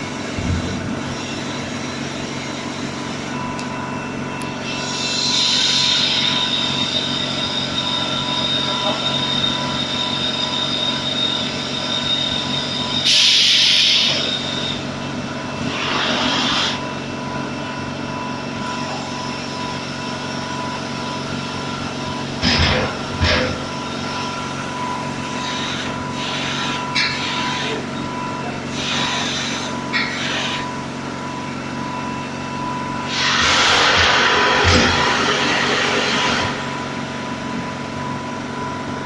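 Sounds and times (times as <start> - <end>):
air compressor droning: 0.0 - 39.0
air hissing bursts: 13.0 - 14.4, 33.1 - 36.6.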